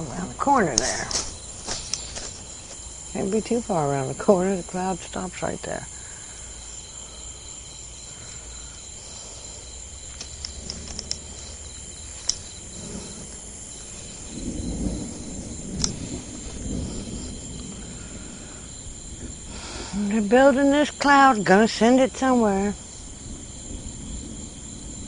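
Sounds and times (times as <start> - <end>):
crickets and insects chirping: 0.0 - 25.0
distant rolling thunder: 0.0 - 25.0
faint clicks: 1.7 - 2.3, 10.1 - 11.5, 12.2 - 12.5, 15.8 - 16.0.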